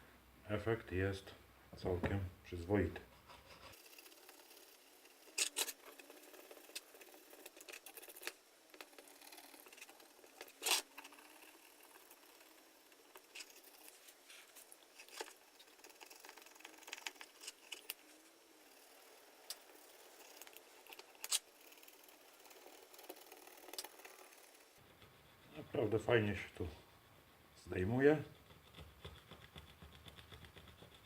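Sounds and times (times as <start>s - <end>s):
knife scraping plastic: 3.3s - 12.2s, 19.5s - 24.4s.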